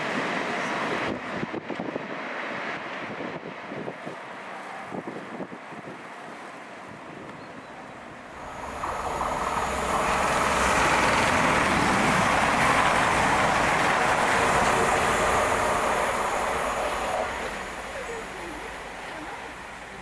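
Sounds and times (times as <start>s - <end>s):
train passing: 7.8s - 20.0s.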